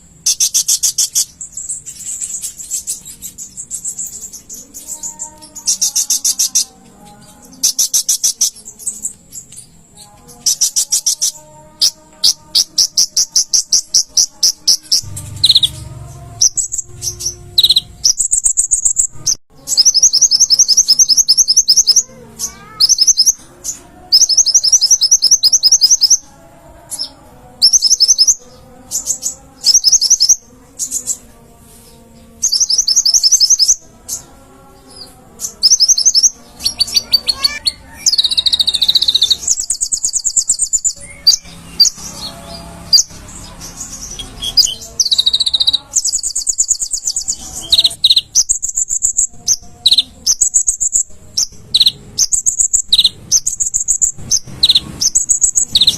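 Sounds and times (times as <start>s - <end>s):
sunbird singing high trills: 0.2s - 26.3s, 26.9s - 31.3s, 32.3s - 55.9s.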